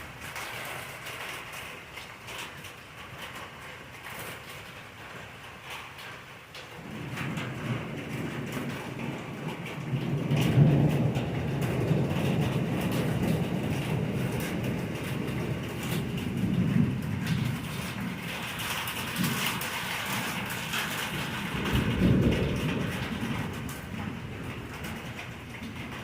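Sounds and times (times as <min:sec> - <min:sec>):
steady rain: 0:00.0 - 0:26.0
rolling thunder: 0:06.8 - 0:26.0.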